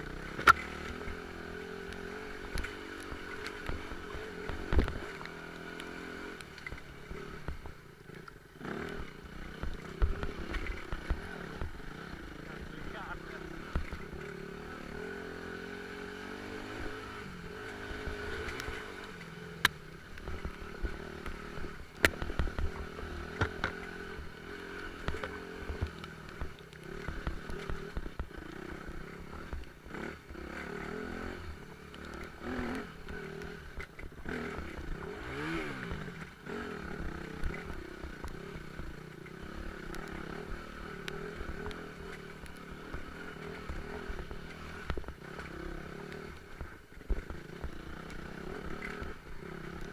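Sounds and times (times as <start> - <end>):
motorcycle engine revving: 0.0 - 49.9
motorcycle knocking and rattling: 6.6 - 14.5, 18.1 - 30.4, 31.6 - 49.9.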